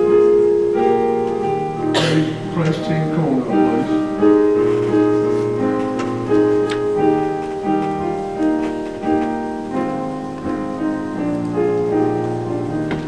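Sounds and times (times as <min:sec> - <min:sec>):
piano playing slow chords: 0:00.0 - 0:13.0.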